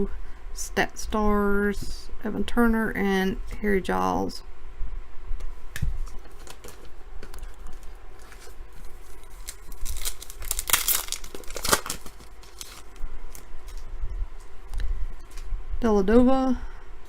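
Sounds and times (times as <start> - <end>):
wrapper crinkling: 6.1 - 13.8
card pack wrapper tearing: 8.2 - 13.8.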